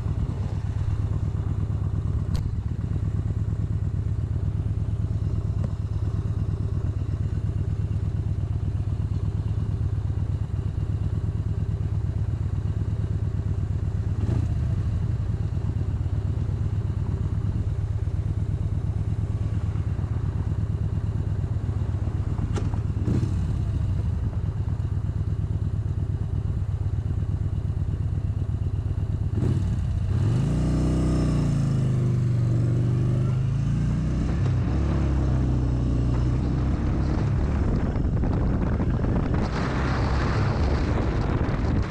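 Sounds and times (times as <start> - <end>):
motorcycle engine revving: 14.0 - 15.2, 22.1 - 24.2, 29.2 - 41.9.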